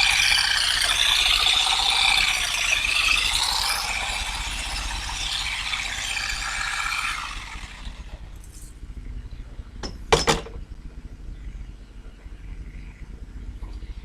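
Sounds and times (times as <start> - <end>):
sharp knocks: 9.8 - 10.6.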